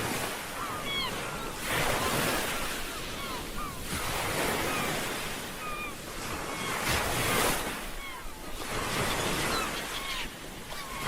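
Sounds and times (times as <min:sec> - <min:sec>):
ocean waves washing in: 0:00.0 - 0:09.7.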